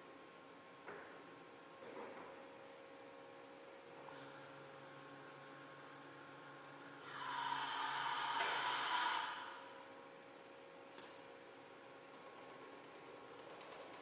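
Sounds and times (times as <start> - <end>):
electric motor hum: 6.9 - 9.7
loud hydraulic hiss: 7.0 - 9.8.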